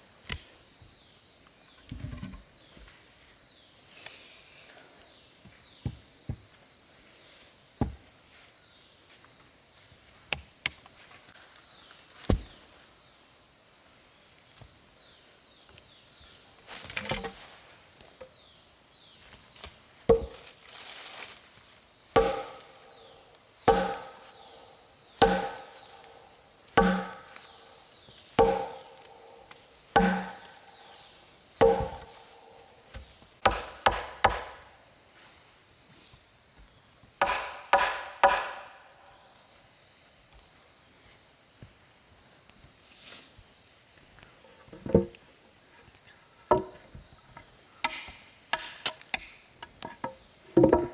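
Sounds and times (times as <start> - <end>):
axe chopping wood: 12.3 - 12.6, 20.1 - 20.5, 22.2 - 23.0, 23.7 - 24.5, 25.2 - 32.3, 32.9 - 34.6, 37.2 - 38.8, 47.8 - 49.8.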